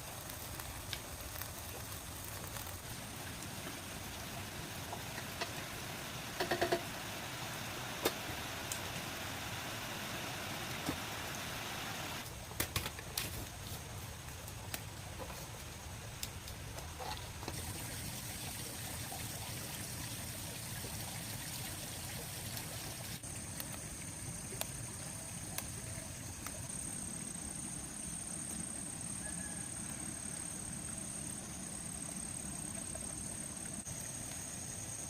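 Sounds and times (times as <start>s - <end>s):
stream water running: 0.0s - 35.0s
high insect drone: 3.1s - 12.2s.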